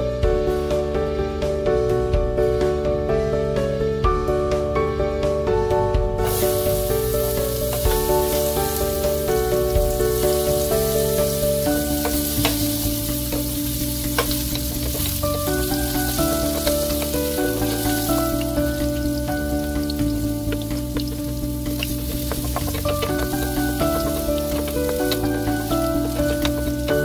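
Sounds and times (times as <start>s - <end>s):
background music: 0.0s - 27.0s
vegetables sizzling in oil: 6.2s - 27.0s
stirring clicks: 11.3s - 27.0s.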